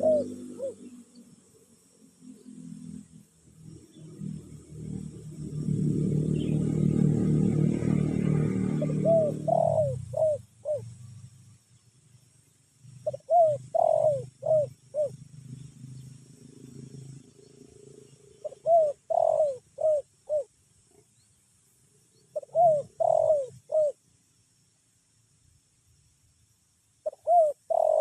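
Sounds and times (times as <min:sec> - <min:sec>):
dove cooing: 0:00.0 - 0:01.0, 0:05.6 - 0:11.0, 0:13.0 - 0:15.6, 0:18.4 - 0:20.5, 0:22.3 - 0:24.0, 0:27.0 - 0:28.0.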